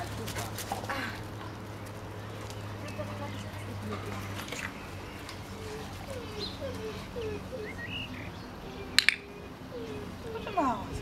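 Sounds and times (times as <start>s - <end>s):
high bird chirps: 4.6s - 10.7s.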